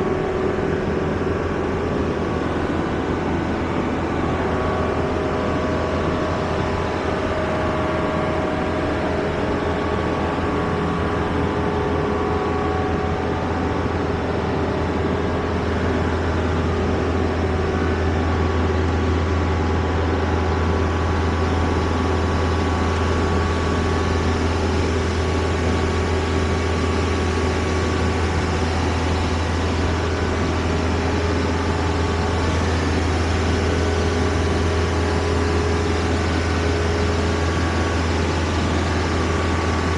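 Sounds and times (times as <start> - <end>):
engine drone with deep hum: 0.0 - 39.9.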